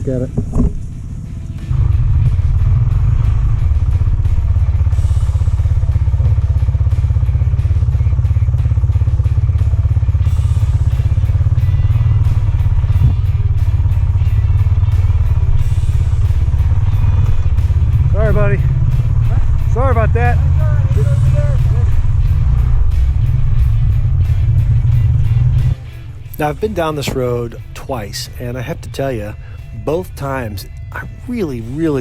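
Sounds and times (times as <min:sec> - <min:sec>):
motorcycle engine running: 0:00.0 - 0:32.0
single knock: 0:00.4 - 0:00.8.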